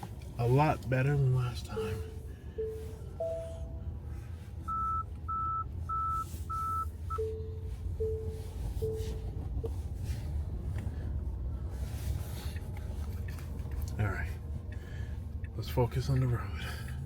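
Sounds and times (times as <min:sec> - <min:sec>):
car cabin rumble: 0:00.0 - 0:17.0
short electronic beeps: 0:01.8 - 0:03.8, 0:04.7 - 0:09.4.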